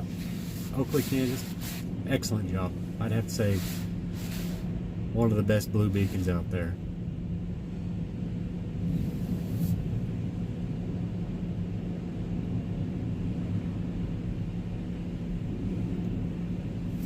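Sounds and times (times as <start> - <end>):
heater fan blowing: 0.0 - 17.0
short hiss: 3.4 - 4.6.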